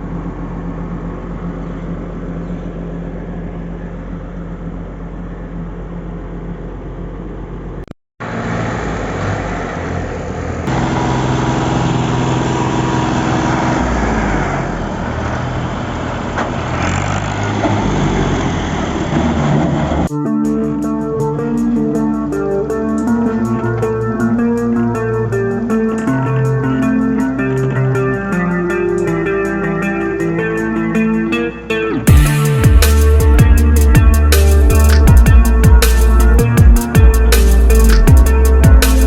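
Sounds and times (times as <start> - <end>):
heavy machinery diesel engines: 0.0 - 20.1
guitar music: 20.1 - 39.0.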